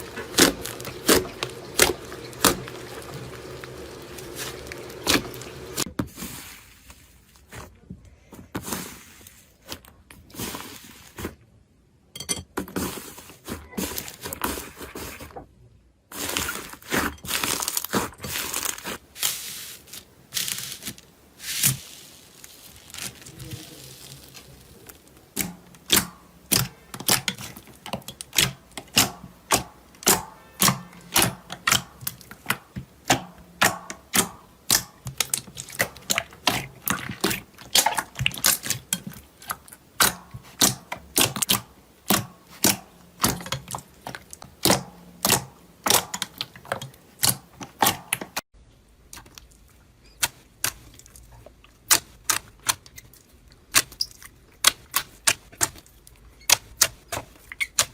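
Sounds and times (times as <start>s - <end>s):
crunchy material being crushed: 0.0s - 6.3s, 16.1s - 48.2s.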